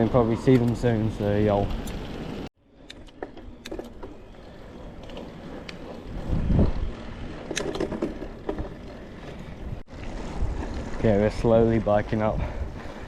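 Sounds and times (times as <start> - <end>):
wind rumbling on microphone: 5.1 - 13.0.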